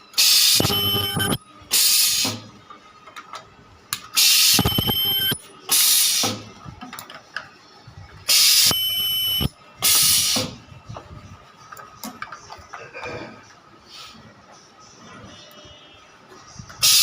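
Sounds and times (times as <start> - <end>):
welding machine hissing bursts: 0.2 - 0.8, 1.7 - 2.4, 4.2 - 4.7, 5.7 - 6.4, 8.3 - 8.7, 9.8 - 10.6.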